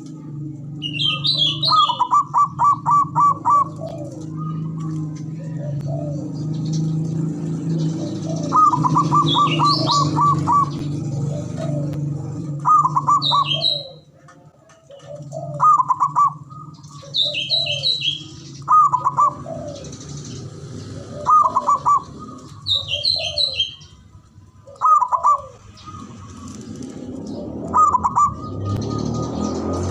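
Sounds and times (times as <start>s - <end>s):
dove rhythmic cooing: 0.0s - 29.9s
small birds chirping: 0.0s - 29.9s
short falling dove coos: 1.7s - 6.2s, 14.8s - 16.4s, 21.0s - 23.6s, 24.7s - 27.0s.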